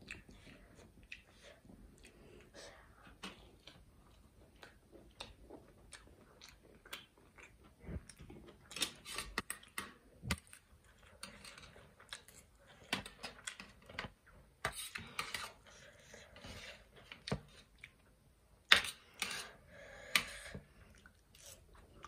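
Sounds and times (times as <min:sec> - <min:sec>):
chewing with mouth smacks: 0:00.0 - 0:02.5, 0:03.4 - 0:13.7.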